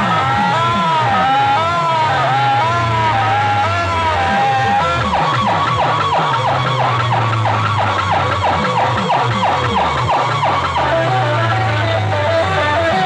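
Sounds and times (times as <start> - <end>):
deep bass: 0.0 - 13.0
electronic siren effect: 0.0 - 13.0
music over loudspeakers: 0.0 - 13.0.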